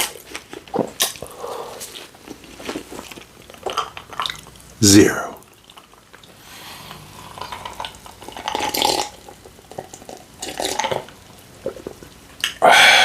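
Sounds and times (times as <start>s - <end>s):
gulping soda: 3.3s - 13.0s.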